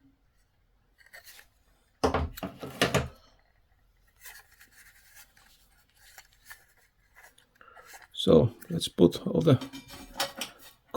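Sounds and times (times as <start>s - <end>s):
hands rubbing parts: 2.5s - 10.9s.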